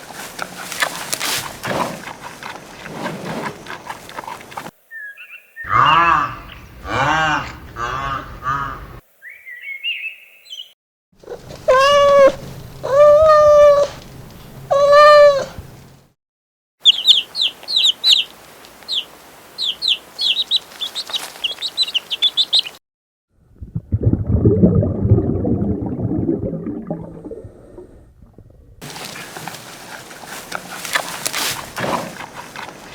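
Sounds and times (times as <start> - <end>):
long steady animal calls: 11.2 - 14.0, 14.7 - 15.6, 28.8 - 32.9
low rough grunting: 28.8 - 32.9.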